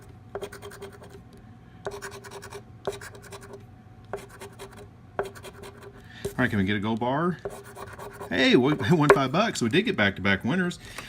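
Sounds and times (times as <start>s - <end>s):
scratch-off ticket being scratched: 0.0s - 1.2s, 1.9s - 3.6s, 4.2s - 5.9s, 7.5s - 9.0s.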